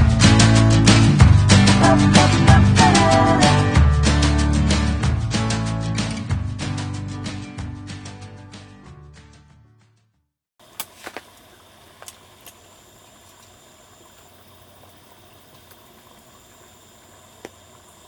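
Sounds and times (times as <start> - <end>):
faint outdoor water noise: 10.6 - 18.0
sharp ticks: 12.0 - 18.0.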